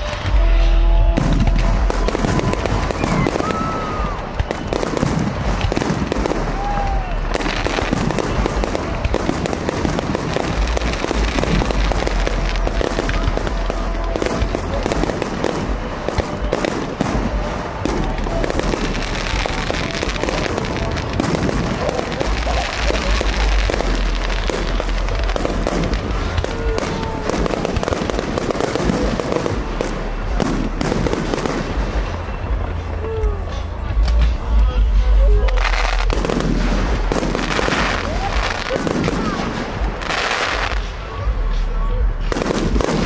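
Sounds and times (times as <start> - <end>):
fireworks crackling and banging: 0.0 - 43.0.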